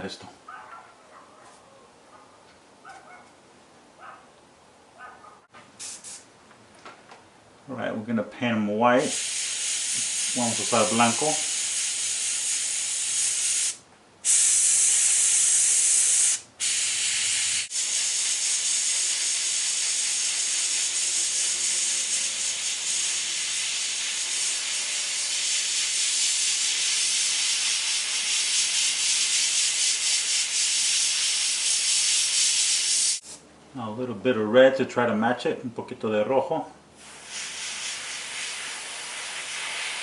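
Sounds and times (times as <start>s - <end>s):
airbrush hissing: 5.8s - 6.3s, 9.0s - 33.4s, 37.0s - 40.0s.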